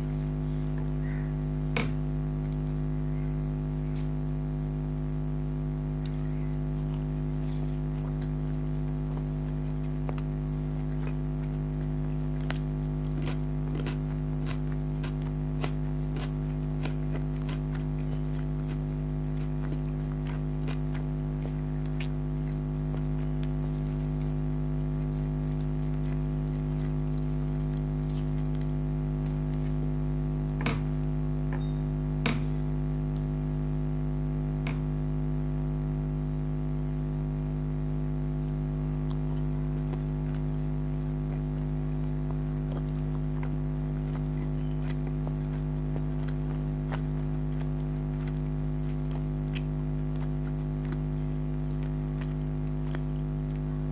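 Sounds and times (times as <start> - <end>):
low electrical hum: 0.0 - 53.9
chewing squishes and clicks: 2.3 - 2.8, 5.9 - 31.6, 38.3 - 53.9.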